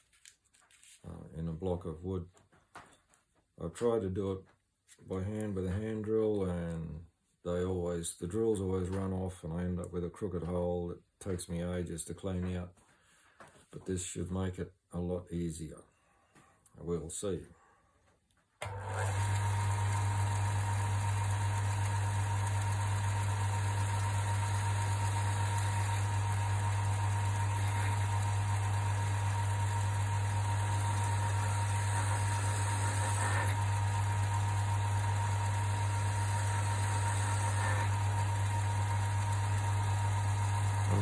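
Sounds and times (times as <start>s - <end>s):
electric motor humming and whining: 18.6s - 41.0s.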